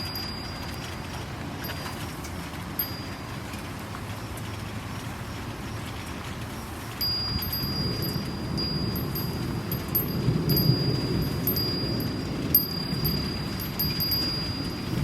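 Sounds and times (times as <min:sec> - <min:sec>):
wind chime ringing: 0:00.0 - 0:03.4, 0:07.0 - 0:15.0
rainstorm: 0:00.0 - 0:15.0.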